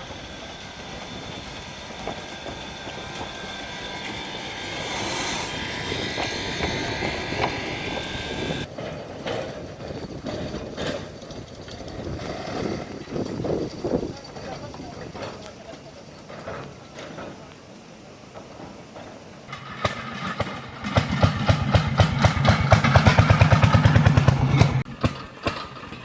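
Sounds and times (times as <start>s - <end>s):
train rumbling: 0.0s - 17.6s, 18.3s - 26.0s
short hiss: 4.4s - 8.6s.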